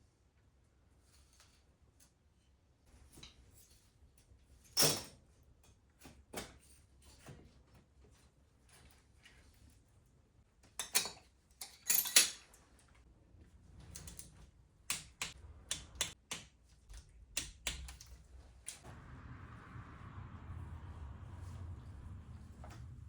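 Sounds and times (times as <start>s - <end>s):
metallic clicks of hand tools: 14.9s - 16.5s.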